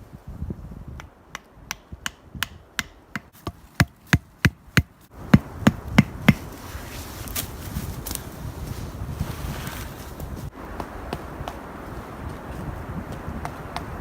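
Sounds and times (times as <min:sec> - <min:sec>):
wind noise: 0:00.0 - 0:14.0
hammer blows on tent pegs: 0:01.0 - 0:06.6.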